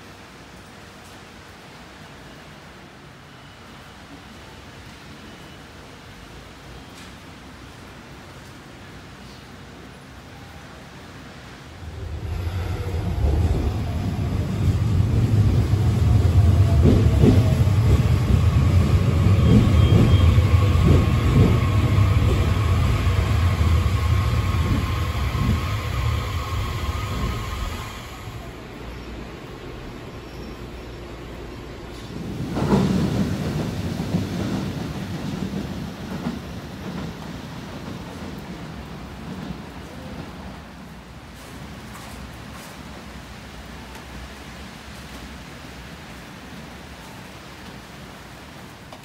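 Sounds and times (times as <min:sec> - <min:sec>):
train wheels rumbling on rails: 0:11.5 - 0:49.0.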